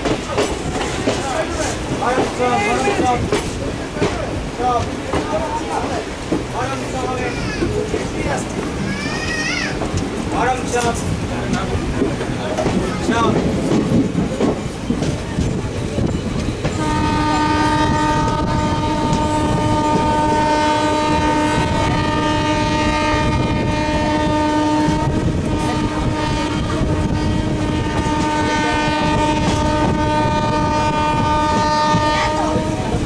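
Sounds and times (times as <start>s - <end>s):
moving train running noise: 0.0s - 33.0s
train horn blast: 16.7s - 33.0s.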